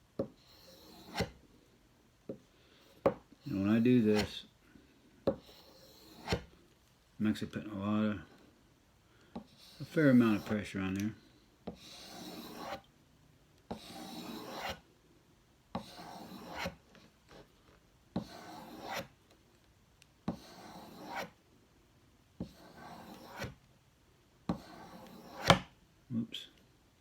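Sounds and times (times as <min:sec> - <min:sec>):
knife stroking on leather strop: 0:11.8 - 0:12.8.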